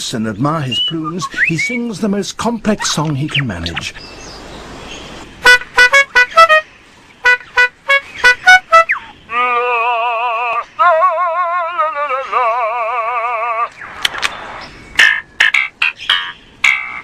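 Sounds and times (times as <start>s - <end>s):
bird mimicking warbling siren: 7.2s - 13.8s.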